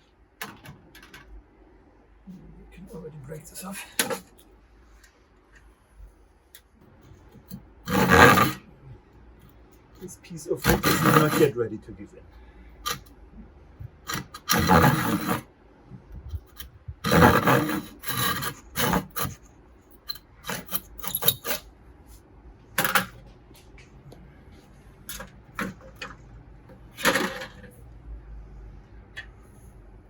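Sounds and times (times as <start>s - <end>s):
handsaw rasping through wood: 14.5s - 15.4s, 17.1s - 19.4s.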